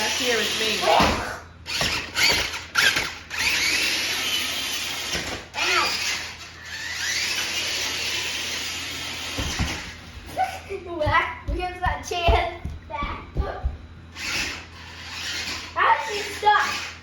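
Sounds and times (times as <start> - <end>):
toy truck motor whining: 0.0 - 9.9, 14.2 - 17.0.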